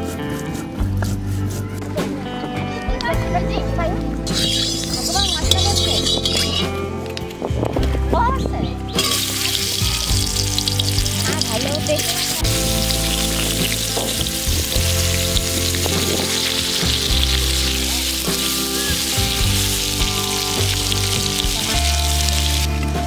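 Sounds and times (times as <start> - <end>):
background music: 0.0 - 23.0
potatoes sizzling in hot oil: 4.4 - 6.6, 9.0 - 23.0.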